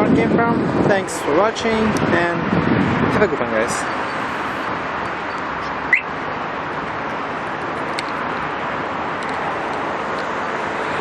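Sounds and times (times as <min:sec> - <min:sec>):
road traffic noise: 0:00.0 - 0:11.0
sharp high chirp: 0:05.6 - 0:06.1.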